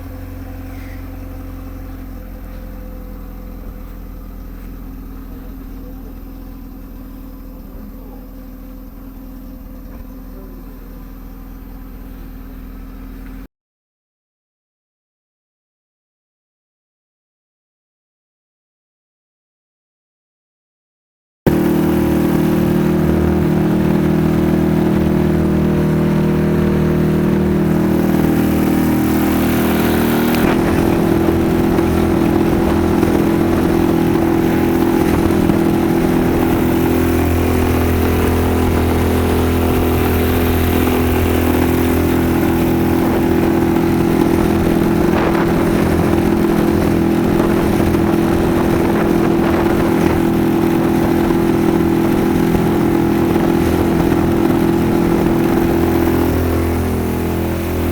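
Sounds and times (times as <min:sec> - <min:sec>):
outboard motor running: 0:00.0 - 0:13.5, 0:21.5 - 0:57.9.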